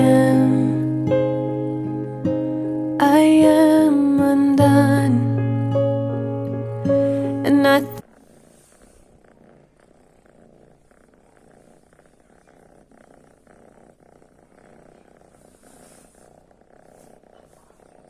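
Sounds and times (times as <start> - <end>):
kitten purring: 0.0 - 5.4, 6.0 - 18.0.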